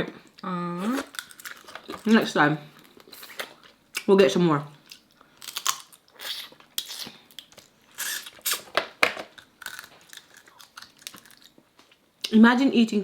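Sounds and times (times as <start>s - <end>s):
crunching and chewing: 0.8s - 2.2s, 4.8s - 8.7s, 9.3s - 12.0s.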